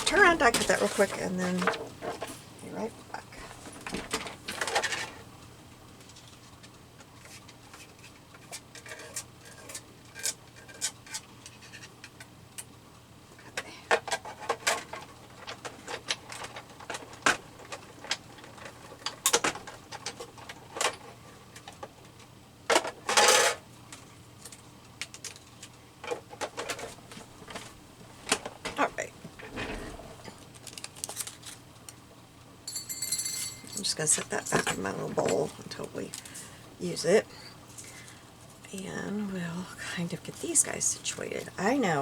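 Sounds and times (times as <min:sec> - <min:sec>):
scraping rustle: 0:00.0 - 0:02.6.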